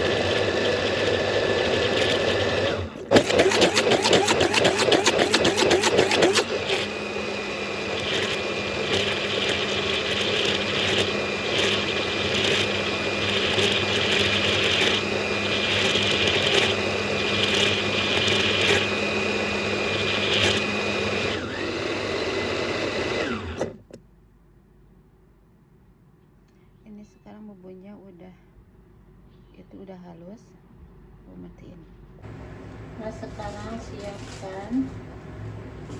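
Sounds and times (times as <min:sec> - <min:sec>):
electric blender grinding: 0:00.0 - 0:23.9.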